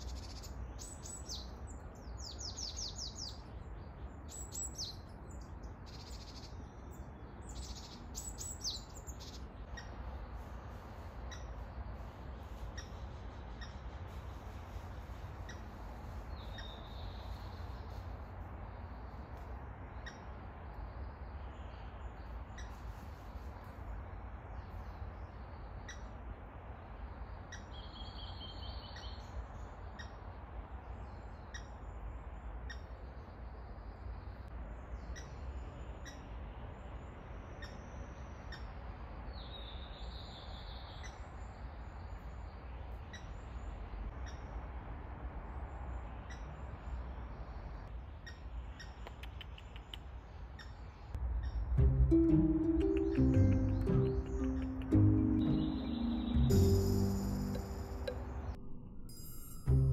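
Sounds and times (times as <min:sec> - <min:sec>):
low rumble: 0:51.2 - 0:59.9
high bird chip notes: 0:51.5 - 0:59.9.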